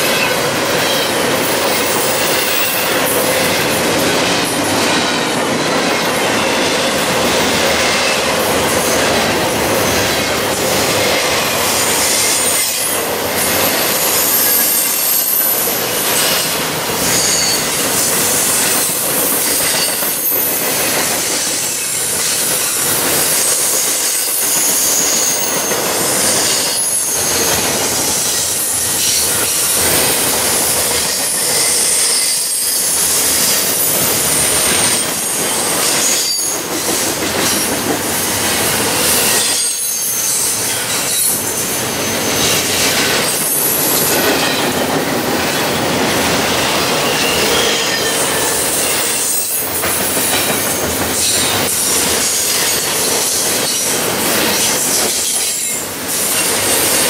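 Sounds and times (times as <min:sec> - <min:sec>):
train wheels rumbling on rail: 0:00.0 - 0:57.0
high wheel squeal: 0:06.4 - 0:44.8.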